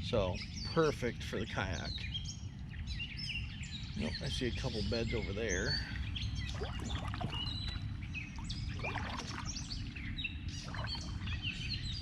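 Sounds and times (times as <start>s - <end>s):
birds chirping: 0.0s - 12.0s
steady low rumble: 2.6s - 12.0s.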